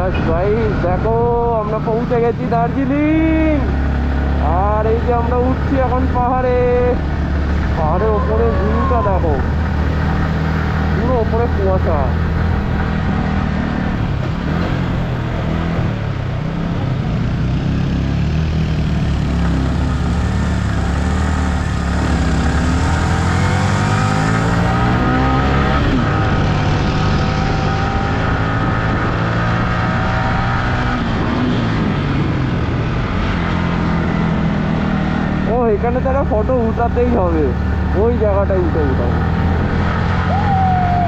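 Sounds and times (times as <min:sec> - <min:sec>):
riding wind noise: 0:00.0 - 0:17.3.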